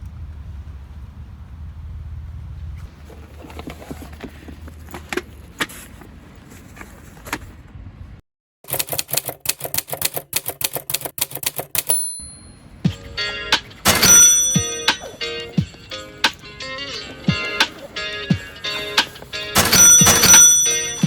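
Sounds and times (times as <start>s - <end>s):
faint outdoor background noise: 0.0s - 8.2s
scattered clicks: 8.7s - 12.0s
typewriter keystroke clicks: 8.7s - 12.2s
typewriter bell ring: 8.7s - 12.6s, 13.9s - 15.2s, 19.6s - 21.0s.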